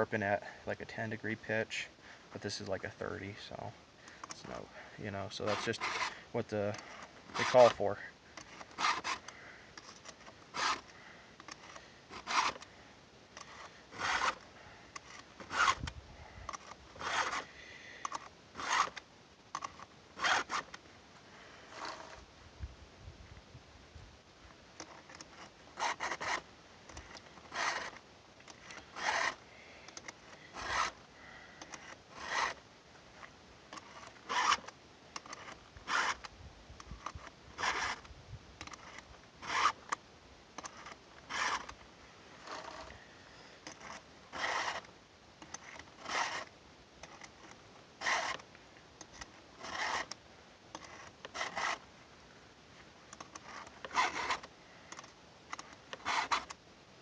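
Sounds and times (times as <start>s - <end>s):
file rasping on chainsaw chain: 4.1s - 12.7s, 13.4s - 15.9s, 16.5s - 19.0s, 19.6s - 20.8s, 21.6s - 22.2s, 24.8s - 32.6s, 33.2s - 40.0s, 40.6s - 41.8s, 42.4s - 48.4s, 49.0s - 51.8s, 53.1s - 56.6s.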